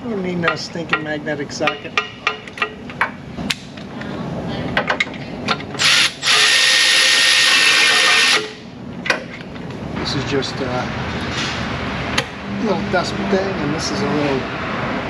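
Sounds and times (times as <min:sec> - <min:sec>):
power tool running: 0:05.8 - 0:08.6.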